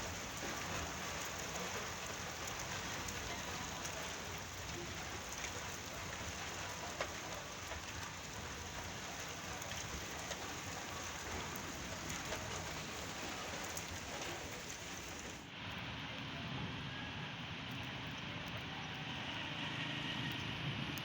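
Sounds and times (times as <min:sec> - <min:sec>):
raindrop taps: 0:00.0 - 0:15.5
steady rain falling: 0:00.0 - 0:21.0.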